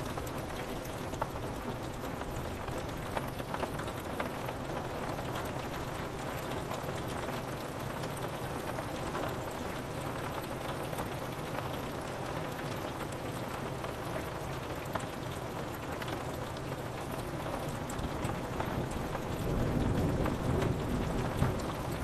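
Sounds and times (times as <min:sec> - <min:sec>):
rain on a window pane: 0:00.0 - 0:22.0.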